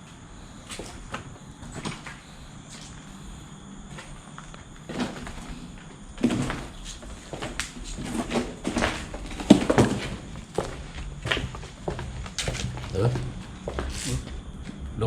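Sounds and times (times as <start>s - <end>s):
irregular knocks and thuds: 4.9s - 15.0s.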